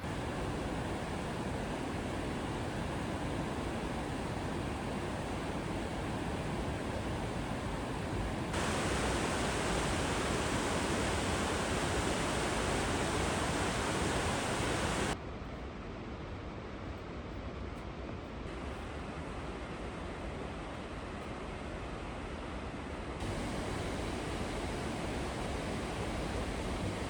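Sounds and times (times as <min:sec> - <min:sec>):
creek water rushing: 0:00.0 - 0:15.2, 0:23.2 - 0:27.0.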